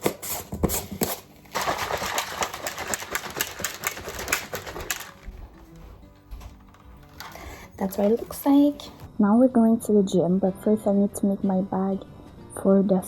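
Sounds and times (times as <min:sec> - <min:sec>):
plastic bottle clicking and rattling: 0:00.6 - 0:08.4.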